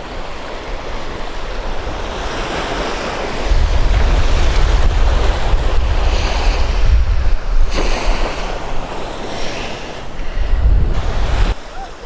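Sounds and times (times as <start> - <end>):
rushing sea water: 0.0 - 12.0
wind buffeting microphone: 0.1 - 11.7.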